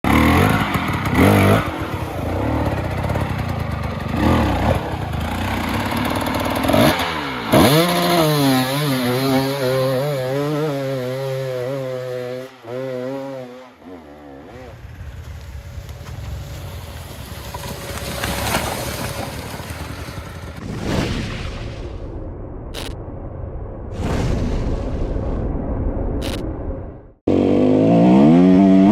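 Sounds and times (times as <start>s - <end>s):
dirt bike engine revving: 0.0s - 15.2s, 27.3s - 28.9s.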